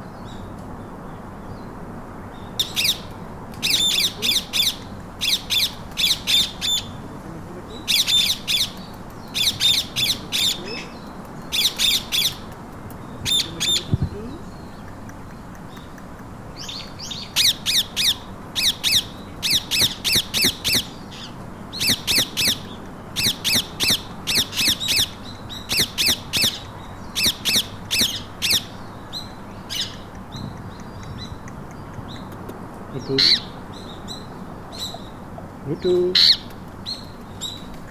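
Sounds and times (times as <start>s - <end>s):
parakeets screeching: 3.6s - 7.0s, 7.8s - 8.8s, 9.4s - 12.4s, 16.6s - 30.5s, 33.0s - 35.2s, 36.1s - 37.6s.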